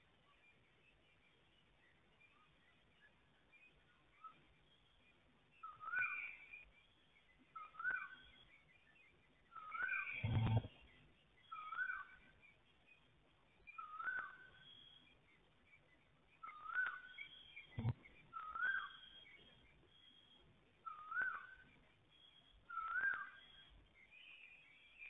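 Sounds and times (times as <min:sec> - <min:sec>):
bird whistling: 0:05.6 - 0:06.6, 0:07.6 - 0:08.5, 0:09.5 - 0:12.3, 0:13.7 - 0:15.2, 0:16.4 - 0:25.0
high chirps: 0:09.6 - 0:12.2.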